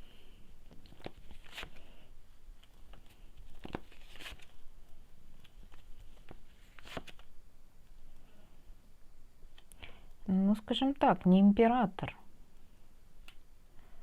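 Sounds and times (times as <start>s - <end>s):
cards slapping and rustling: 0.6s - 2.0s, 2.6s - 7.3s.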